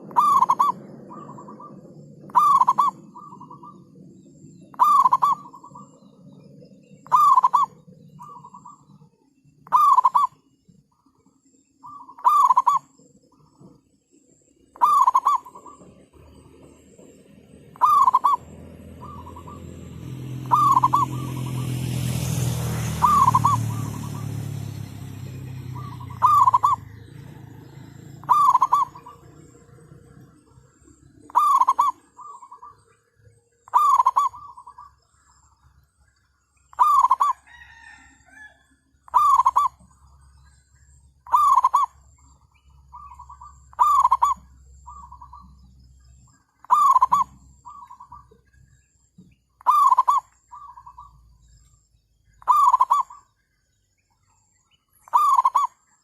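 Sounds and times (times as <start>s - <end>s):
dove cooing: 0.0s - 6.4s, 7.0s - 9.0s, 9.6s - 10.4s, 11.8s - 13.7s, 14.7s - 32.9s, 33.6s - 35.0s, 36.7s - 38.5s, 39.1s - 39.9s, 41.2s - 42.1s, 42.9s - 45.6s, 46.6s - 48.5s, 49.6s - 51.3s, 52.4s - 53.3s, 55.1s - 55.8s.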